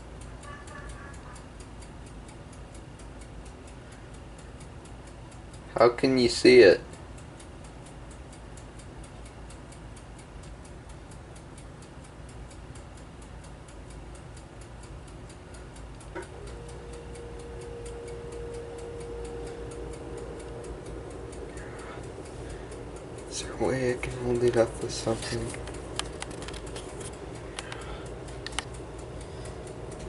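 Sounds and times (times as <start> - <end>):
faint steady hum: 0.0 - 30.0
rapid mechanical ticking: 0.0 - 30.0
click: 25.3 - 28.8.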